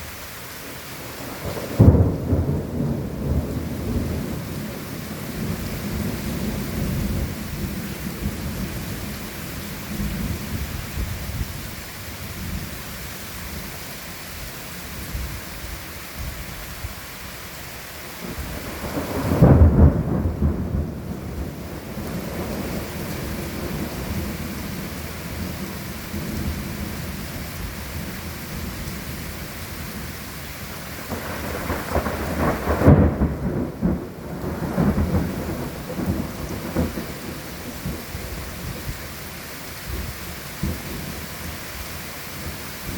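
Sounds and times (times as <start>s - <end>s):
steady rain: 0.0s - 42.9s
thunder rumbling: 1.2s - 11.6s, 18.2s - 41.6s.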